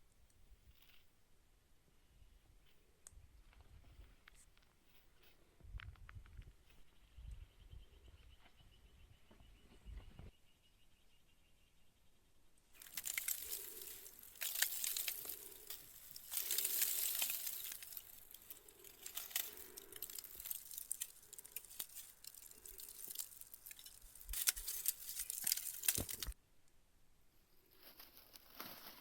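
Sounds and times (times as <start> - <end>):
dry rustling and crackling: 12.8 - 26.4, 27.7 - 29.0
sharp clicks and snaps: 12.8 - 26.4.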